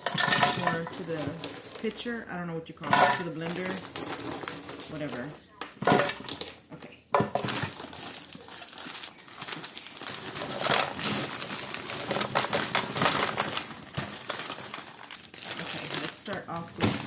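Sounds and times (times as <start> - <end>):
frozen fruit clattering into blender: 0.0 - 17.0
plastic bag crinkling: 0.0 - 17.0.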